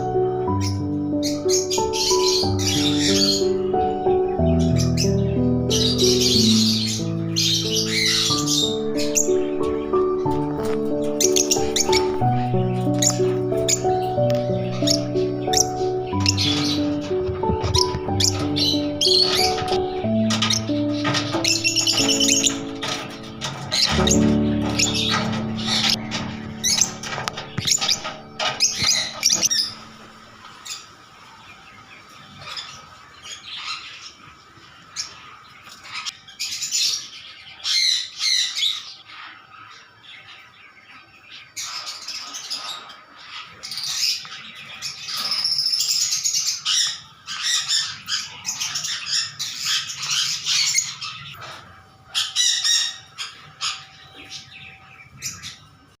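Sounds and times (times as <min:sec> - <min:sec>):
lovebirds chirping and squawking: 0:00.0 - 0:56.0.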